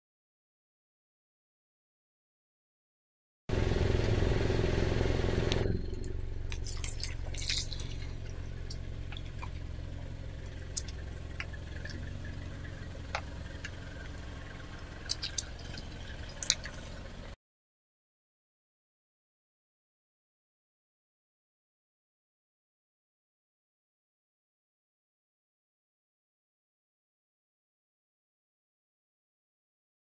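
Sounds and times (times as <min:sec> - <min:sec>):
car engine idling: 0:03.5 - 0:17.4
small clicks and drips: 0:06.5 - 0:17.3.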